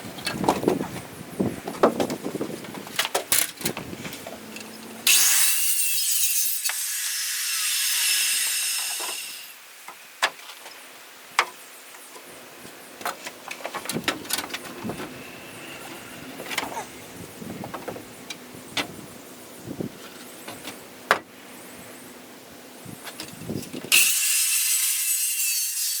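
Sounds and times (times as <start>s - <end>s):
saw cutting lumber: 4.3s - 9.6s, 23.9s - 26.0s.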